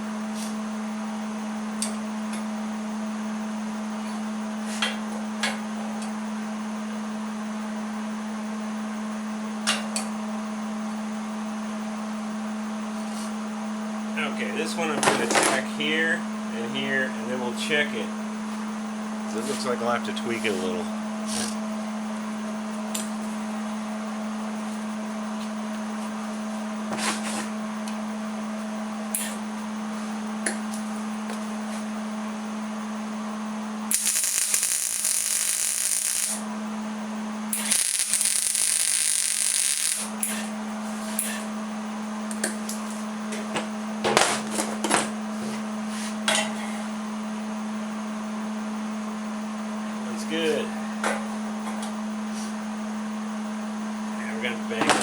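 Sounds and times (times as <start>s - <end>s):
steady shop hum: 0.0s - 55.0s
arc welder hissing: 33.9s - 36.5s, 37.5s - 41.5s.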